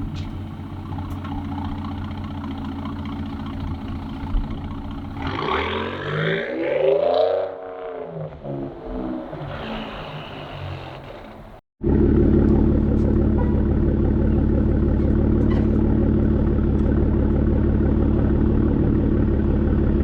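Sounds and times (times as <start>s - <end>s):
loud truck exhaust note: 11.8s - 20.0s.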